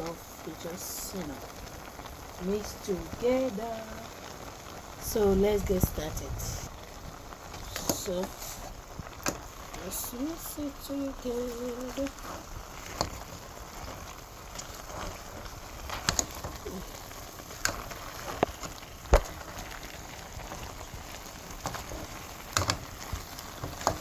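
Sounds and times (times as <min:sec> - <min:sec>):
meat bubbling in a pot: 0:00.0 - 0:24.0.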